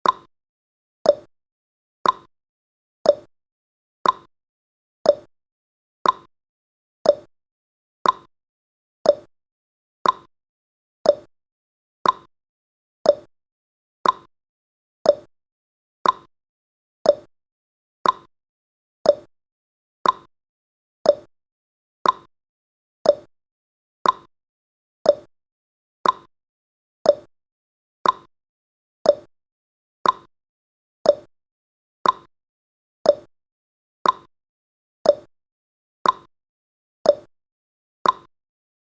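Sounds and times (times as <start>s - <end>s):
clock ticking: 2.0s - 2.3s, 4.0s - 4.3s, 6.0s - 6.3s, 8.0s - 8.3s, 10.0s - 10.3s, 12.0s - 12.3s, 14.0s - 14.3s, 18.0s - 18.3s, 20.0s - 20.3s, 22.0s - 22.3s, 23.1s - 23.3s, 24.0s - 24.3s, 26.0s - 26.3s, 28.0s - 28.3s, 29.1s - 29.3s, 30.0s - 30.3s, 31.1s - 31.3s, 32.0s - 32.3s, 33.1s - 33.3s, 34.0s - 34.3s, 36.0s - 36.3s, 38.0s - 38.3s.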